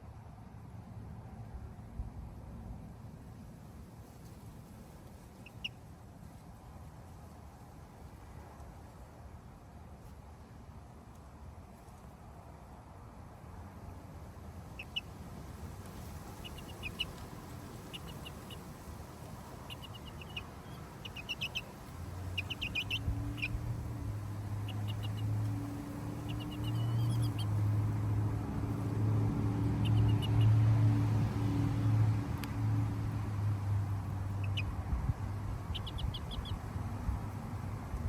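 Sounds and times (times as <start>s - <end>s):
steady low hum: 14.7s - 38.0s
high quick bird chirps: 16.2s - 23.7s, 24.6s - 27.6s.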